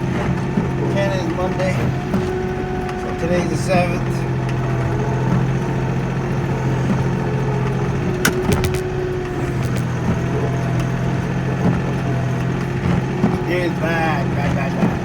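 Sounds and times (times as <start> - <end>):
sharp clicks: 8.3 - 9.9.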